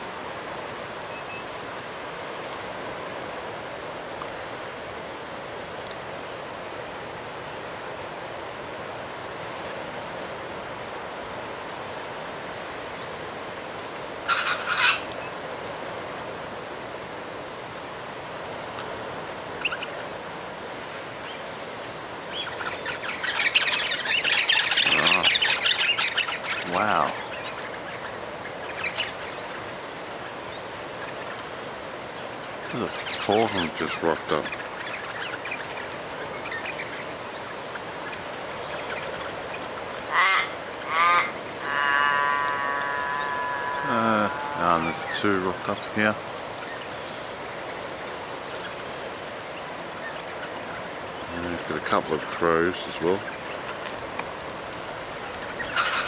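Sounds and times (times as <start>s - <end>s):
steady background hiss: 0.0s - 56.0s
birds chirping: 14.2s - 15.4s, 19.6s - 20.2s, 22.2s - 53.9s, 54.6s - 56.0s
crow cawing: 14.3s - 15.1s, 40.1s - 45.3s
dense bird chattering: 14.3s - 15.1s, 22.3s - 29.6s, 32.2s - 37.0s, 40.1s - 46.2s, 55.6s - 56.0s.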